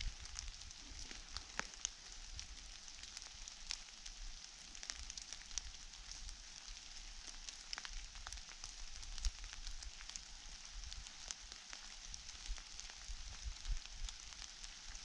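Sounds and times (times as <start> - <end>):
rustling litter and dry leaves: 0.0 - 15.0
wind rumble on microphone: 12.4 - 14.3.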